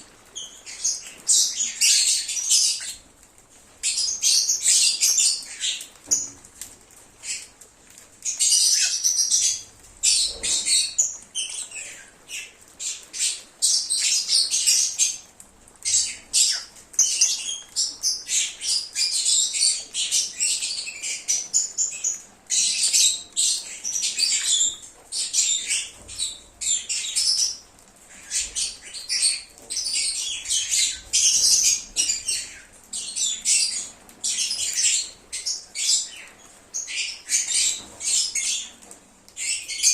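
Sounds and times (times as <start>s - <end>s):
lovebirds chattering: 8.2s - 39.9s.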